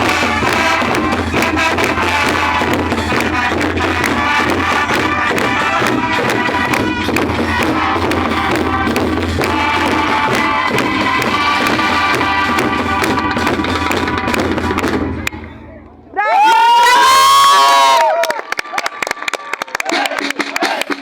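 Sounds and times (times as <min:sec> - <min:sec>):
brass band playing: 0:00.0 - 0:15.9
drums and cymbals beat: 0:00.0 - 0:17.2, 0:19.9 - 0:21.0.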